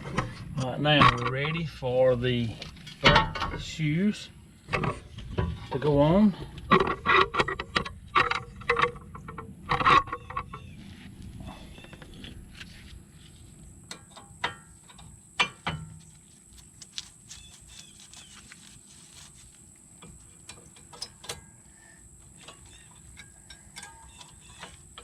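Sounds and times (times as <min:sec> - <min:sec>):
metallic clicks and clinks: 0:22.4 - 0:25.0.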